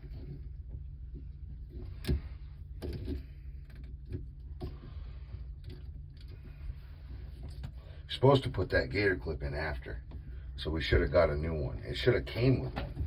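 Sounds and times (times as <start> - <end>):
knocks and clicks of handling cable: 0.0 - 4.9, 12.6 - 13.0
steady low hum: 0.0 - 13.0.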